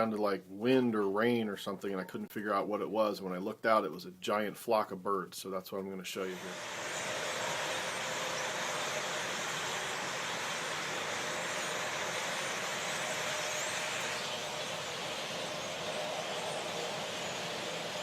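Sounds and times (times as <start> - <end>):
faint high chirps: 6.3 - 18.0
flock of birds rushing noise: 6.4 - 18.0.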